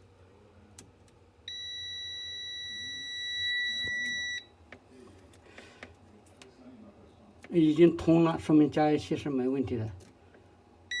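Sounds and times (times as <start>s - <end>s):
multimeter continuity beep: 1.5s - 4.5s.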